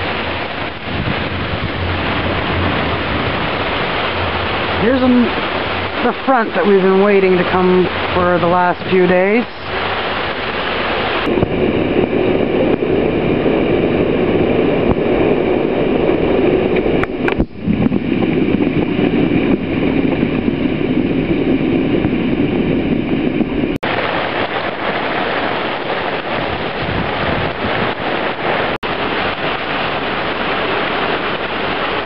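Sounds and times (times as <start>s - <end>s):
rain: 0.0s - 32.0s
wind rushing: 0.0s - 32.0s.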